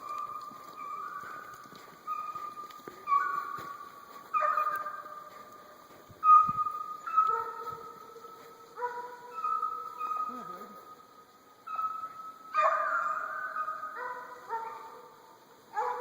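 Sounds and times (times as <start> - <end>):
hounds howling: 0.0 - 16.0.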